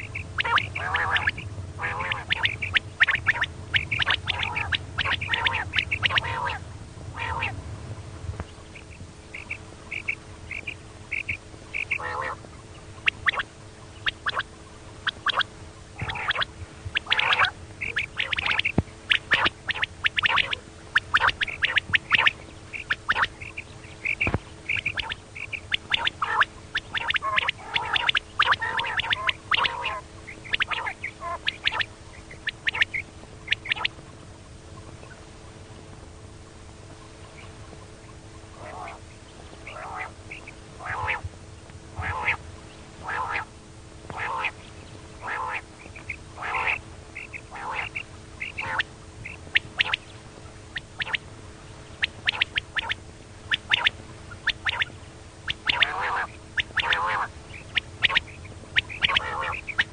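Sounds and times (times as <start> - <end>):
quail calling: 0.0 - 7.6, 8.4 - 35.3, 36.9 - 41.3, 41.9 - 43.5, 44.1 - 51.2, 51.9 - 59.9
faint steady hum: 0.0 - 59.9.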